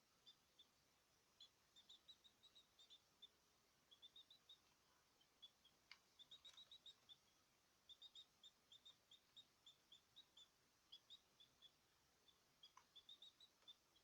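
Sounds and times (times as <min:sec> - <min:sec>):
small cage birds chirping: 0:00.0 - 0:14.0
faint clicks: 0:05.8 - 0:06.8.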